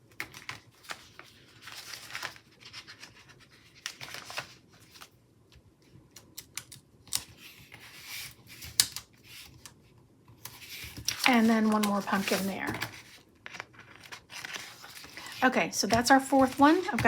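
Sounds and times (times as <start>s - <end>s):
stickers peeling and rustling: 10.4s - 17.0s.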